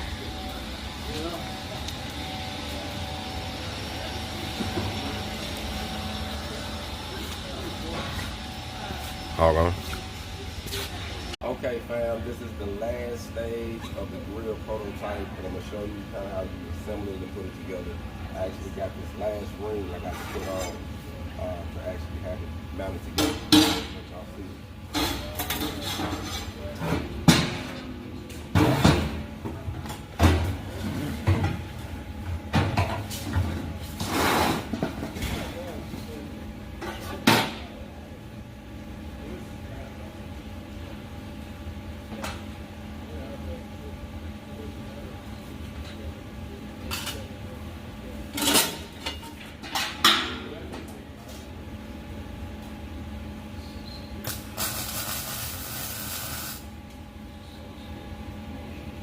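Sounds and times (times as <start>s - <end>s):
loud steady hiss: 54.2s - 56.7s.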